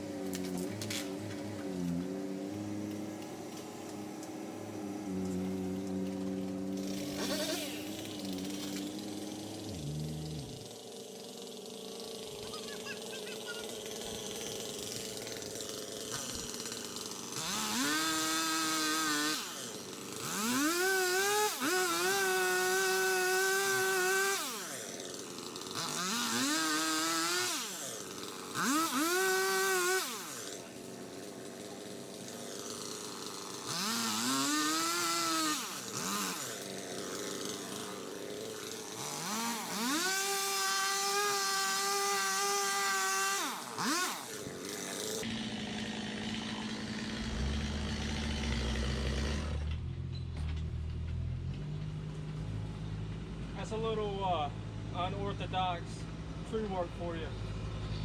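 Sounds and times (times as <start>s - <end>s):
chainsaw revving and idling: 0.0s - 58.0s.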